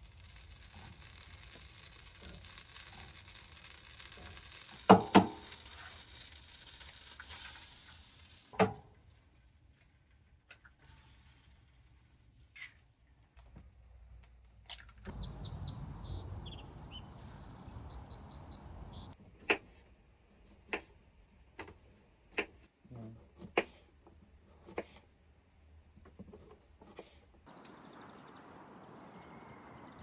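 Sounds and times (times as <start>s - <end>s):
songbird chirping: 15.1s - 19.2s, 27.5s - 30.0s.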